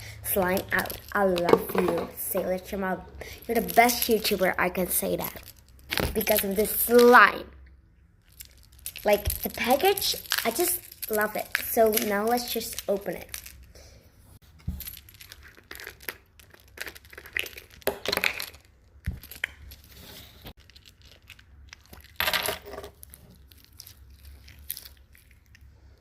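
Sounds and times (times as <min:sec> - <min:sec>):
plastic packaging tearing and crinkling: 0:08.3 - 0:13.7, 0:14.7 - 0:22.2.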